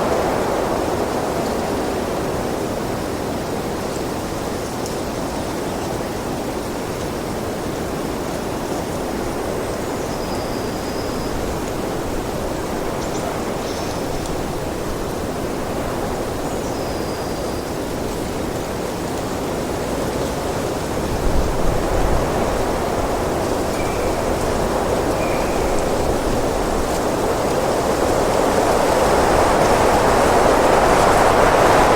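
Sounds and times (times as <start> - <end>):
wind blowing: 20.5 - 31.9.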